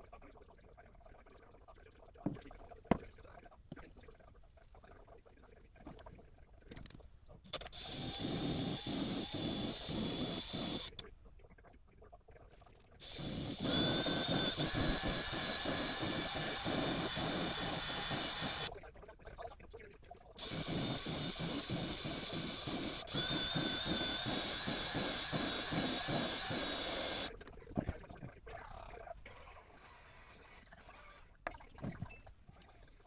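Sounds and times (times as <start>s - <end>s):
power tool whining and rattling: 7.5s - 11.0s, 13.0s - 18.7s, 20.4s - 27.3s.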